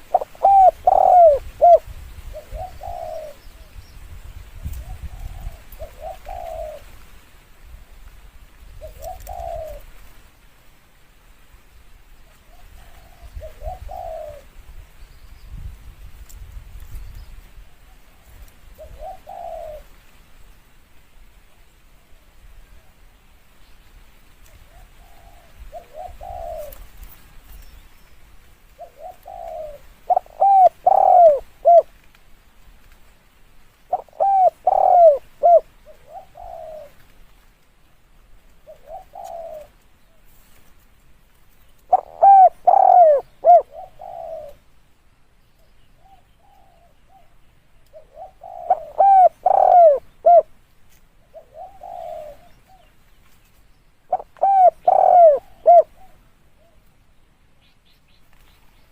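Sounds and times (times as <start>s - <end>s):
dove cooing: 0.0s - 3.7s, 4.6s - 7.0s, 8.8s - 10.0s, 12.3s - 14.6s, 17.6s - 20.0s, 24.6s - 27.1s, 28.8s - 31.9s, 33.9s - 37.2s, 38.6s - 40.2s, 41.8s - 44.7s, 46.0s - 50.6s, 51.2s - 53.0s, 54.1s - 56.8s.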